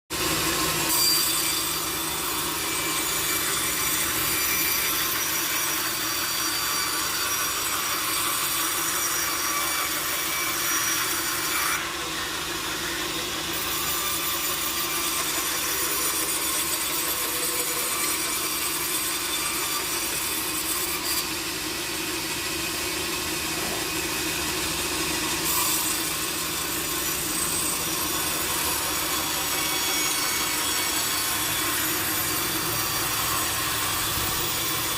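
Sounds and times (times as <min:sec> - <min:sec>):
saw cutting through wood: 0:00.1 - 0:34.9.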